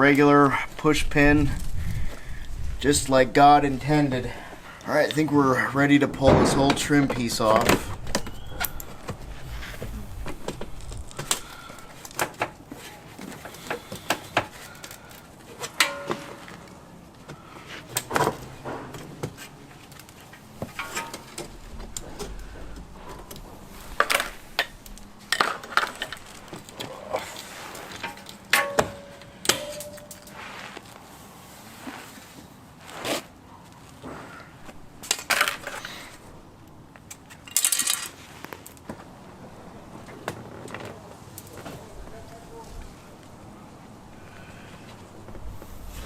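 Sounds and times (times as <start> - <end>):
metal trim clicks and clinks: 28.0 - 30.4.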